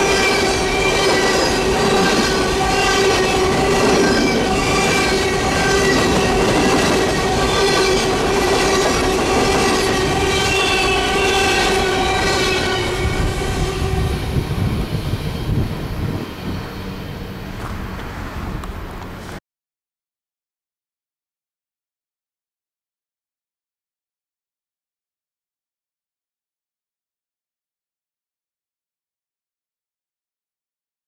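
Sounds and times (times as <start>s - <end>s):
train wheels squealing: 0.0s - 18.0s
freight cars rumbling and clattering: 0.0s - 19.4s.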